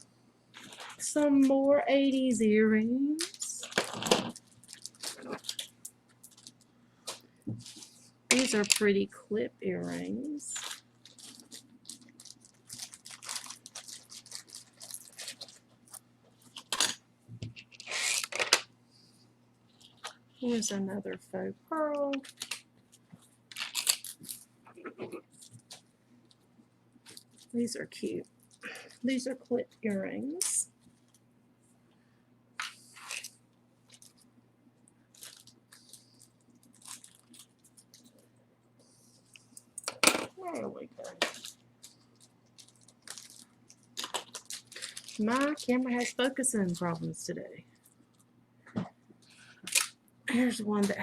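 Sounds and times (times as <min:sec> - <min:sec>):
low steady hum: 0:00.0 - 0:51.0
jewelry rustling: 0:10.2 - 0:16.8, 0:35.1 - 0:38.3, 0:38.9 - 0:47.0.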